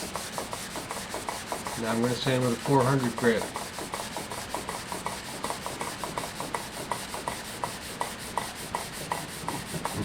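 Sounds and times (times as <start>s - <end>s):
sandpaper rubbing on wood: 0.0s - 10.0s.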